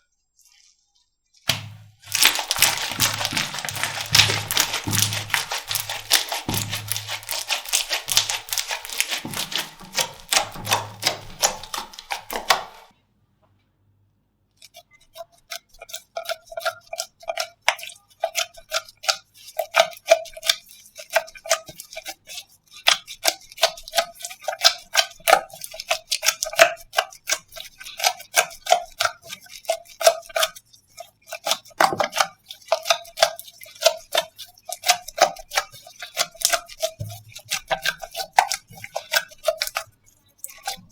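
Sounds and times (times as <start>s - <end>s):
slime crackling: 1.5s - 12.9s
slime wet pops: 1.5s - 12.9s.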